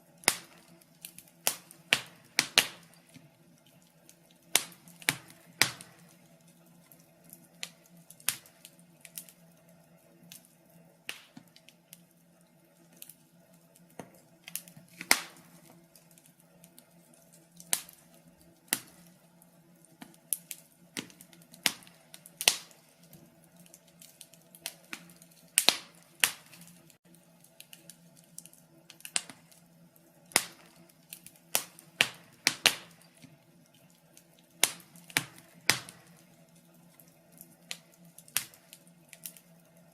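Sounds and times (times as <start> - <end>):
faint steady hum: 0.0 - 39.9
wood fire crackling: 0.0 - 39.9
sharp pops and snaps: 0.2 - 3.2, 3.8 - 6.2, 6.9 - 9.4, 11.1 - 11.8, 13.8 - 16.9, 17.6 - 19.1, 19.9 - 29.6, 30.3 - 33.3, 34.2 - 39.5.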